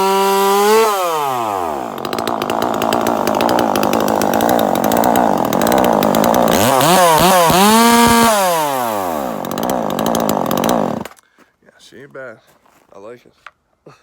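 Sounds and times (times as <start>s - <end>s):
chainsaw cutting wood and revving: 0.0s - 11.2s.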